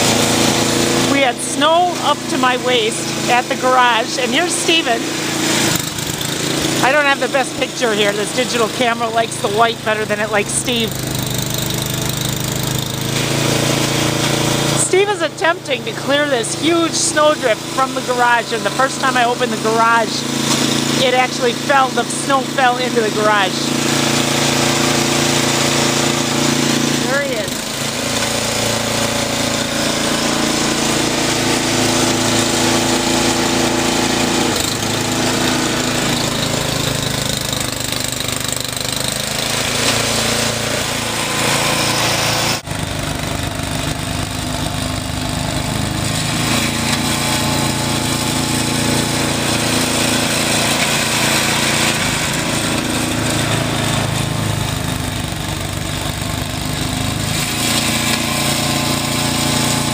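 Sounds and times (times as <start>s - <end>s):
snowblower engine running: 0.0s - 59.9s.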